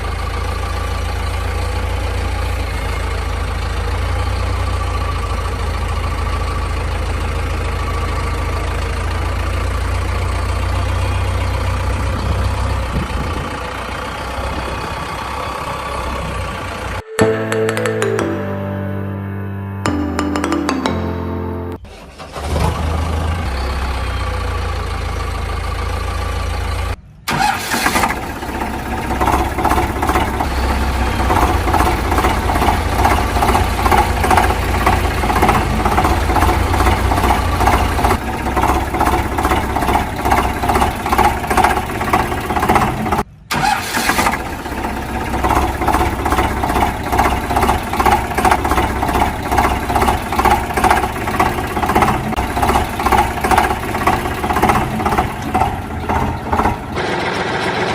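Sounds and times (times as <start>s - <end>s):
tractor engine chugging: 0.0s - 17.0s, 21.9s - 57.9s.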